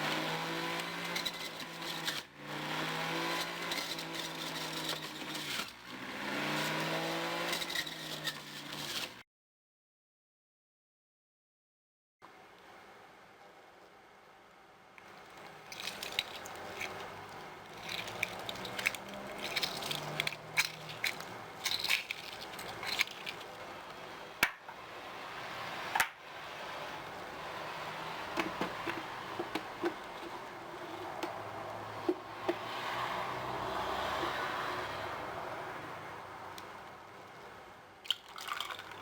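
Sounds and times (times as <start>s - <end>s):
small kitchen clicks and scrapes: 0.0s - 9.2s, 15.1s - 24.7s, 28.2s - 32.7s
rustling: 3.3s - 9.2s, 15.1s - 24.1s.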